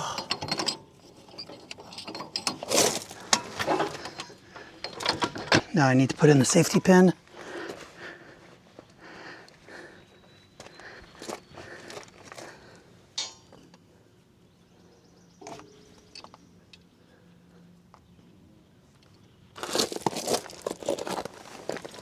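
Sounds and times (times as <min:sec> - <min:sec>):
loud rustling: 0:02.6 - 0:04.2.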